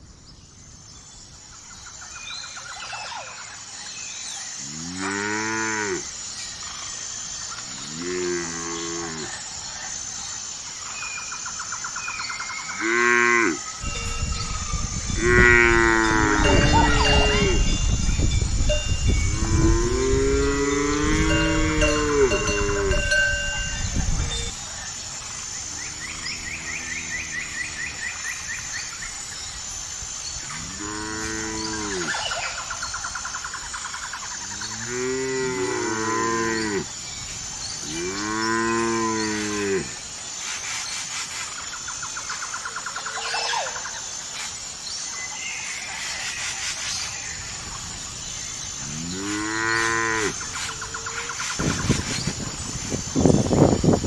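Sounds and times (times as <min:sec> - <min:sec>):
cows mooing: 0:15.1 - 0:17.8, 0:19.3 - 0:23.8, 0:48.8 - 0:50.4.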